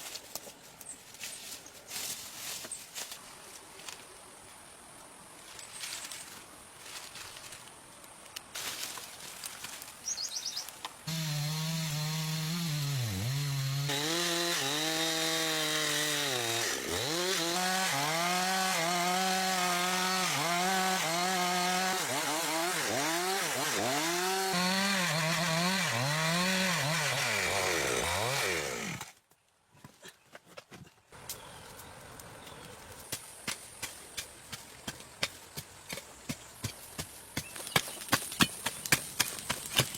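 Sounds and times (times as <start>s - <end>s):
chainsaw cutting timber: 11.1s - 29.2s.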